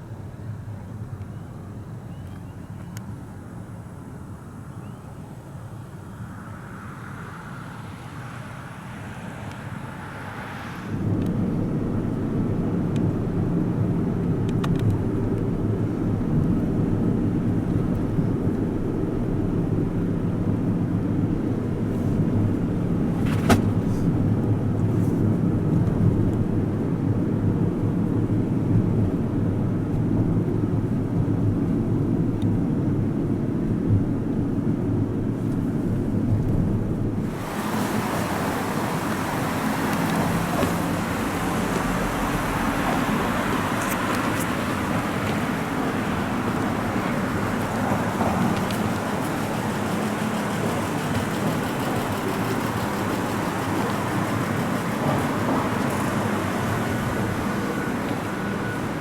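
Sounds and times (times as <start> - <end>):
jet engine rumbling: 34.3 - 59.0.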